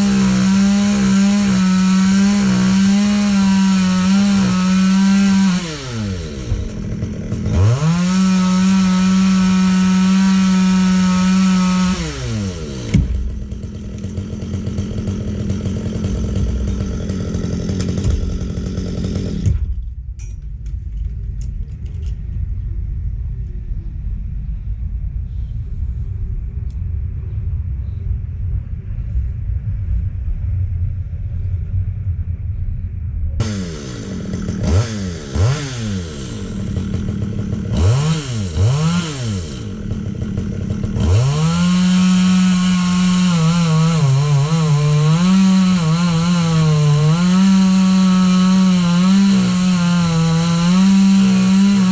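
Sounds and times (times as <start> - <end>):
chainsaw revving: 0.0 - 19.6, 33.4 - 51.9.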